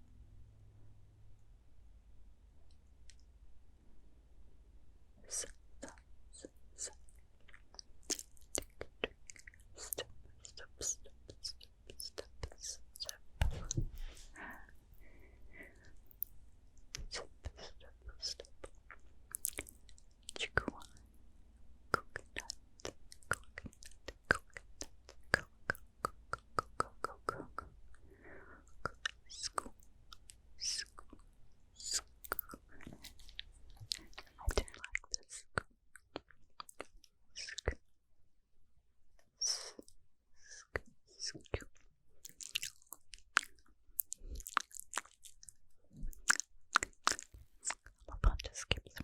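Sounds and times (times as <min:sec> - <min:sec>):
sharp mouth clicks: 0:21.9 - 0:27.8, 0:28.7 - 0:31.2, 0:31.8 - 0:37.8.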